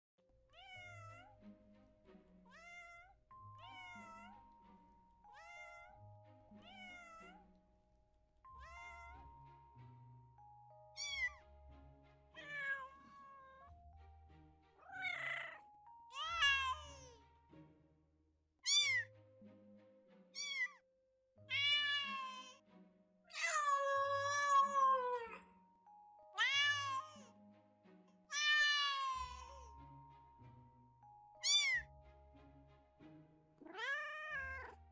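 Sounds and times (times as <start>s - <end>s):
cats meowing: 0.6s - 1.3s, 2.5s - 4.4s, 5.3s - 6.0s, 6.6s - 7.4s, 8.6s - 9.3s, 11.0s - 11.4s, 12.4s - 13.7s, 14.8s - 17.2s, 18.7s - 19.0s, 20.4s - 20.8s, 21.5s - 22.6s, 23.3s - 25.5s, 26.4s - 27.3s, 28.3s - 29.8s, 31.4s - 31.9s, 33.6s - 34.8s.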